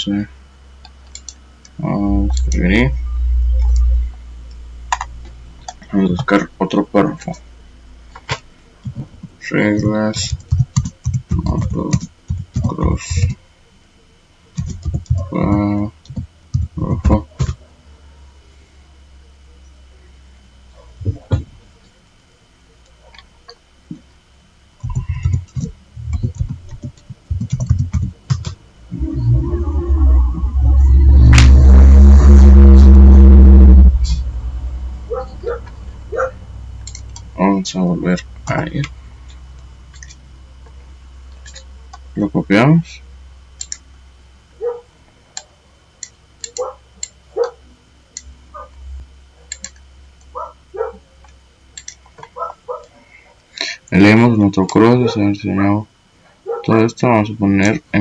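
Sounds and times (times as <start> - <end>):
computer keyboard typing: 10.2 - 13.3, 14.6 - 17.6, 24.8 - 28.6, 49.5 - 49.8.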